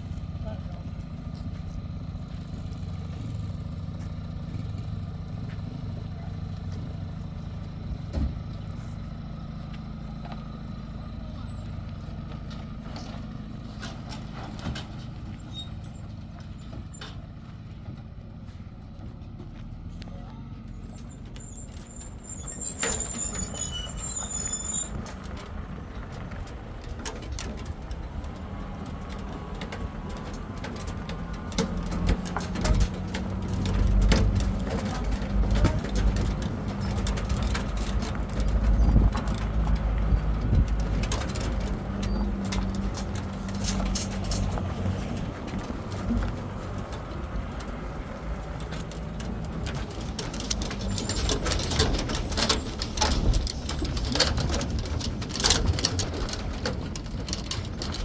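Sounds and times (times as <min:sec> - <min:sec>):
engine knocks and rattles: 0:00.0 - 0:58.0
vehicle engine running: 0:00.0 - 0:58.0
high chirping squeaks: 0:20.9 - 0:25.2.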